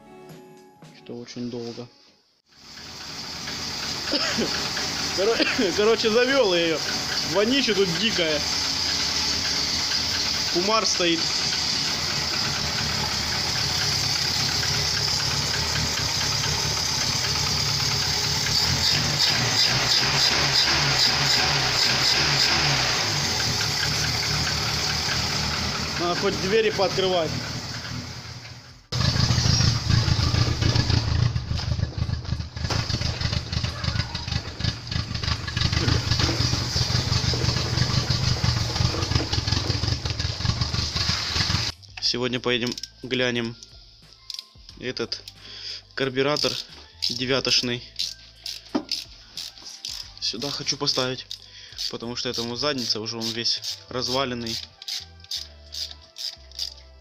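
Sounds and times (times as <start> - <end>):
car engine idling: 2.5 - 41.7.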